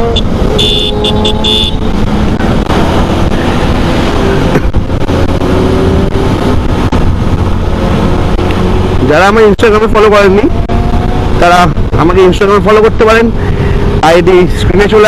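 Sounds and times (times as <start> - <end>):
vehicle horn beeps: 0.0 - 1.9.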